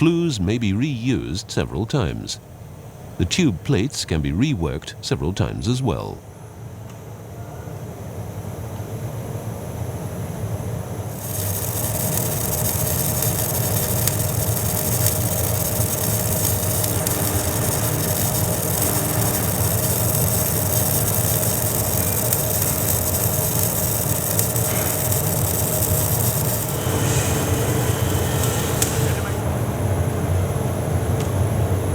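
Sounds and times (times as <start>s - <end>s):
low workshop rumble: 10.9s - 31.9s
harsh hiss with crackles: 11.1s - 29.8s.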